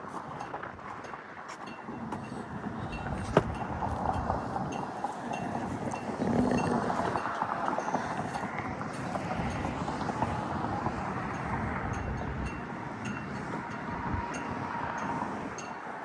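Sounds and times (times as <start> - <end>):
footsteps walking: 0.0 - 6.0
wind on microphone: 0.0 - 16.0.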